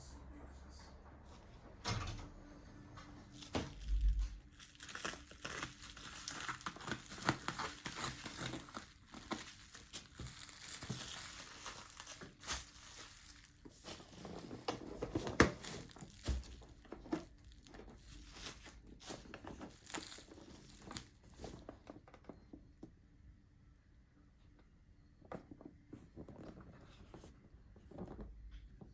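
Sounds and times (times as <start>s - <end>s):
packaging crinkling and tearing: 3.4s - 21.7s.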